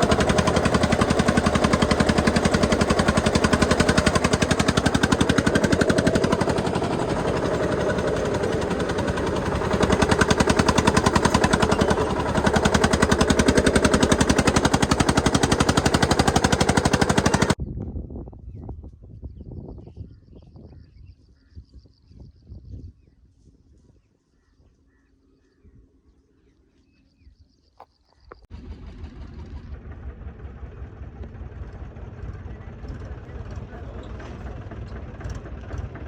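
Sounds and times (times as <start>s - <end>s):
tractor diesel engine chugging: 0.0s - 17.6s, 28.5s - 36.0s.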